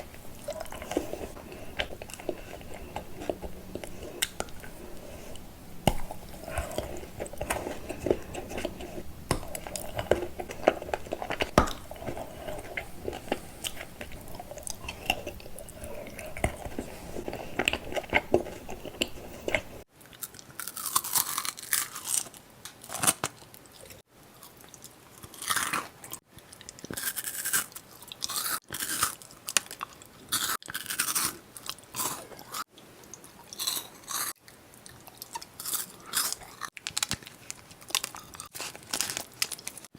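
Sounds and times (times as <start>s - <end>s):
crunchy bites: 0.0s - 19.8s
wet chewing mouth sounds: 0.0s - 19.9s.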